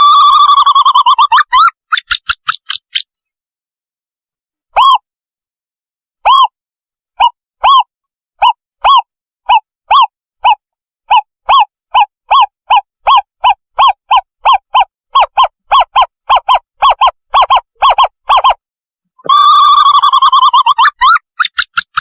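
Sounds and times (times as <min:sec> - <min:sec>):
owl hooting call: 0:04.8 - 0:05.0, 0:06.2 - 0:06.5, 0:07.2 - 0:18.6, 0:19.3 - 0:22.0.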